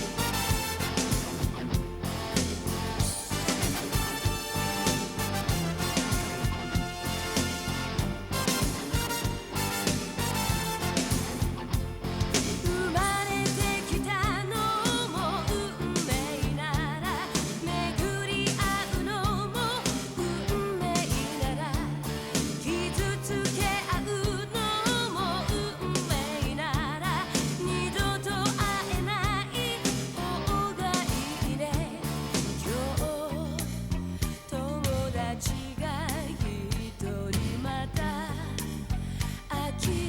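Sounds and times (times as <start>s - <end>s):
pop band with bass and beat: 0.0s - 40.0s
person singing with vibrato: 12.4s - 40.0s.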